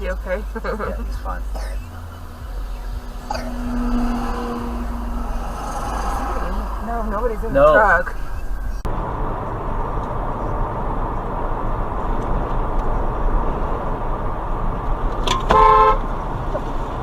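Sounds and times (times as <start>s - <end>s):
car road noise: 0.0s - 17.0s
car horn honk: 1.1s - 8.8s, 15.4s - 16.1s.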